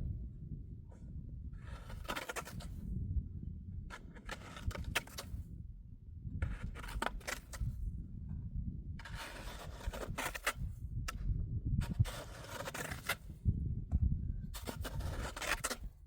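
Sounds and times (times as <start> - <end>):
snow shovel scraping snow: 9.0 - 10.6, 12.0 - 13.2, 14.6 - 15.8.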